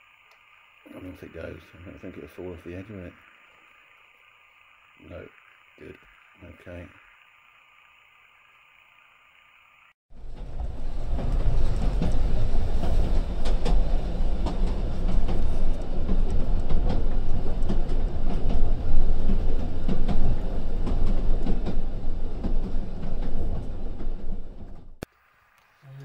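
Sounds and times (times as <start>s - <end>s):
train rumbling on rails: 10.1s - 25.0s
wheels clicking over track: 10.2s - 25.0s.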